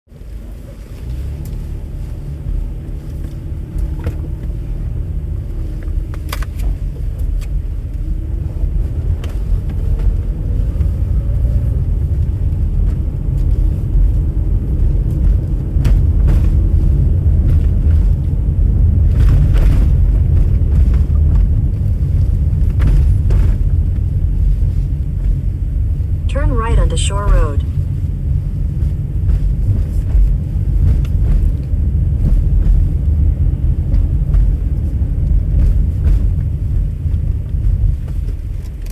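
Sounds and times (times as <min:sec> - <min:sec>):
car rumble on the move: 0:00.1 - 0:38.9.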